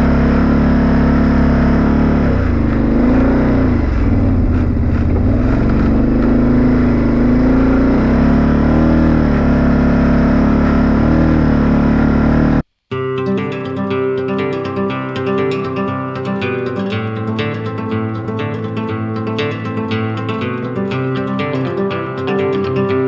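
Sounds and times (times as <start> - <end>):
tractor engine under load: 0.0 - 12.6.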